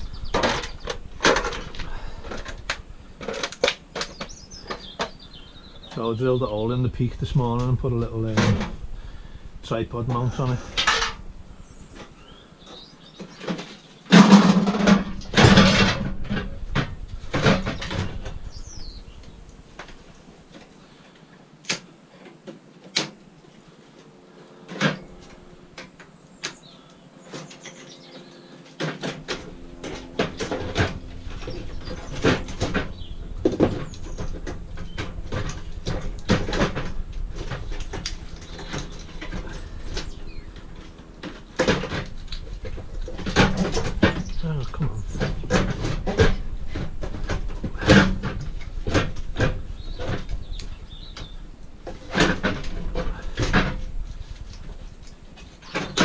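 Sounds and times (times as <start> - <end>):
clanks and knocks of metal parts: 0.0 - 5.2, 5.8 - 8.8, 10.1 - 11.3, 12.7 - 18.6, 27.3 - 56.0
loud rattling clatter: 0.0 - 5.2, 13.4 - 19.2, 28.8 - 56.0
steady low hum: 0.0 - 22.2, 23.1 - 56.0.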